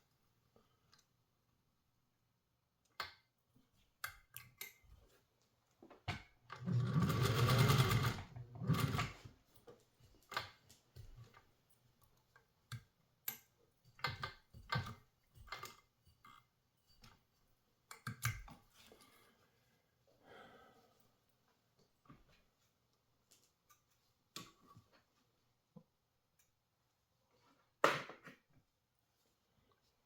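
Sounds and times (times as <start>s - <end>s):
sewing machine stitching: 6.5s - 9.3s.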